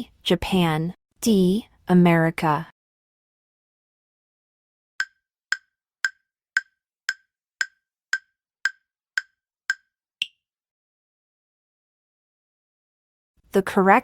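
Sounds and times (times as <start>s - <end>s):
countdown timer ticks: 5.0s - 10.4s.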